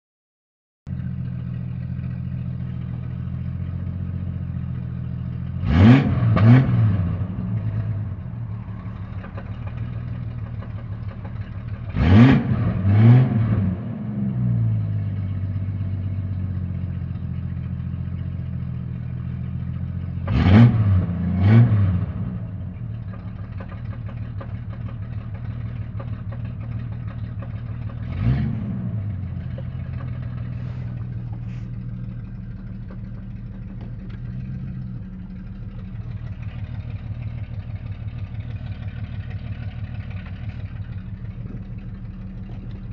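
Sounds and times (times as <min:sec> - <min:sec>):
car engine idling: 0:00.9 - 0:42.9
engine revving: 0:05.4 - 0:15.1, 0:20.1 - 0:42.9.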